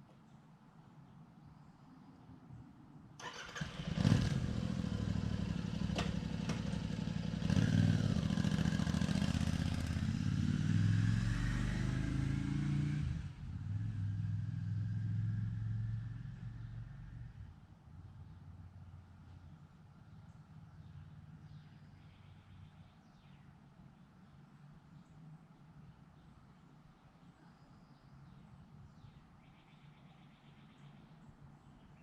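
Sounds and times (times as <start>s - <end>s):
motorcycle engine running: 3.3s - 11.7s.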